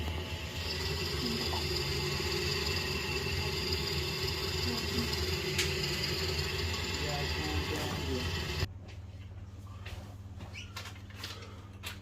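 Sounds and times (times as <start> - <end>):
high steady whine: 0.0 - 8.7
steady mechanical hum: 0.0 - 12.0.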